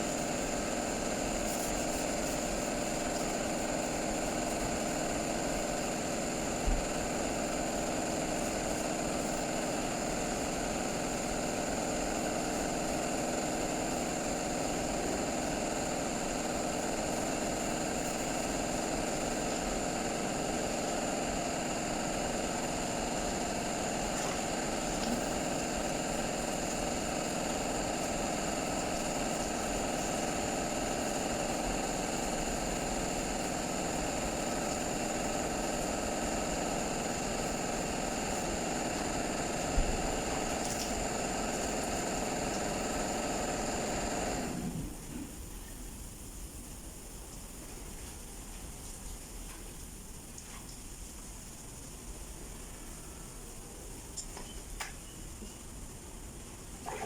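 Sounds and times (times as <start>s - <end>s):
motor-driven machine humming: 0.0s - 45.4s.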